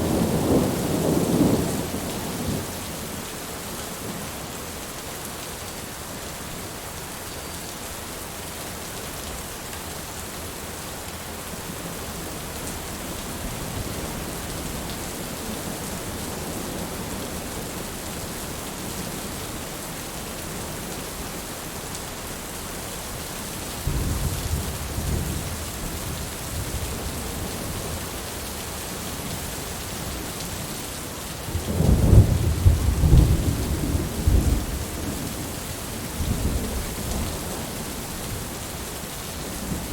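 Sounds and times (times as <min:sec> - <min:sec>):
steady rain falling: 0:00.0 - 0:39.9
rolling thunder: 0:31.5 - 0:35.5.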